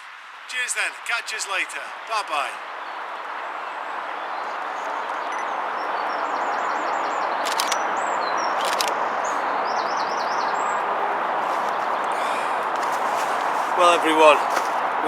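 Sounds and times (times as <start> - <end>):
rushing outdoor noise: 0.0 - 15.0
small birds singing: 5.7 - 14.7.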